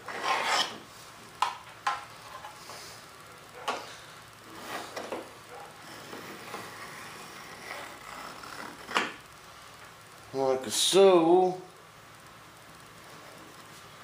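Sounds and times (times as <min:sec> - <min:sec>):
pencil scratching on wood: 0:00.0 - 0:00.8.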